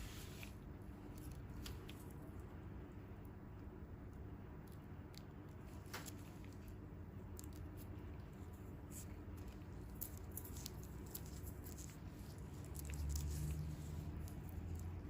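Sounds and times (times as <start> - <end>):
low steady hum: 0.0 - 15.0
hands scratching skin: 8.8 - 15.0.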